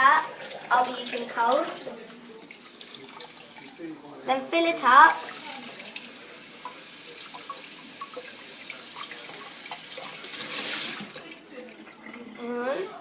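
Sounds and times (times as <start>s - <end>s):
tap water running into plastic tube: 5.2s - 12.4s.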